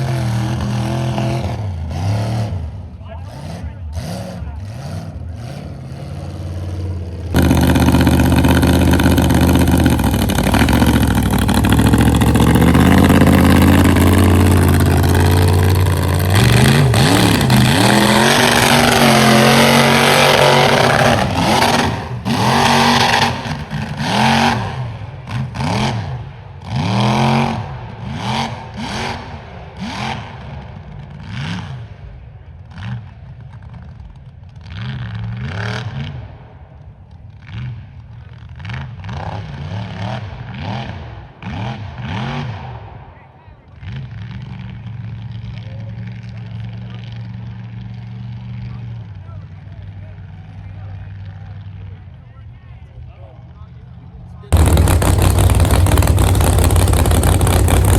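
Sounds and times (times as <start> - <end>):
truck engine revving: 0.0 - 36.5, 37.3 - 42.9, 54.4 - 57.9.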